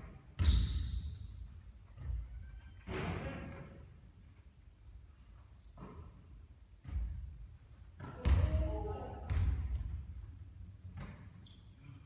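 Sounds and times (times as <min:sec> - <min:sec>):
basketball bouncing on court: 0:00.4 - 0:01.4, 0:08.0 - 0:10.2.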